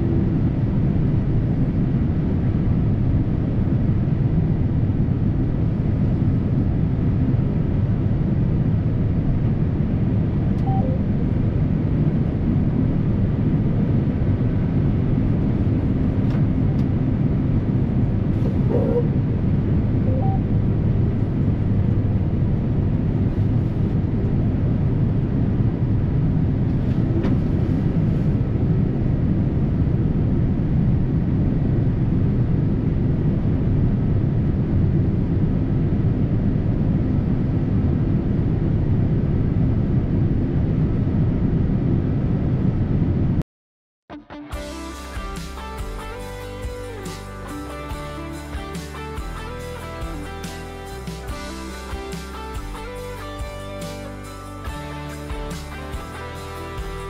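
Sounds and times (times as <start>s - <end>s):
combine harvester engine drone: 0.0s - 43.4s, 44.5s - 57.0s.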